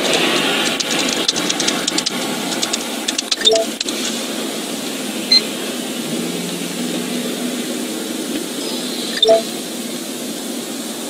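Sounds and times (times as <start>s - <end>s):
rapid irregular clicks: 0.0s - 6.0s
car interior hum: 0.0s - 11.0s
short electronic beep: 3.4s - 3.7s, 9.2s - 9.5s.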